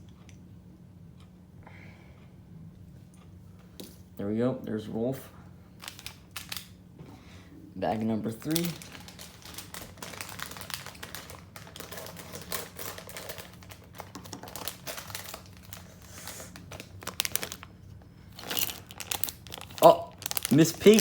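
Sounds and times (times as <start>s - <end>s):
plastic bag crinkling: 5.8s - 6.7s, 7.9s - 21.0s.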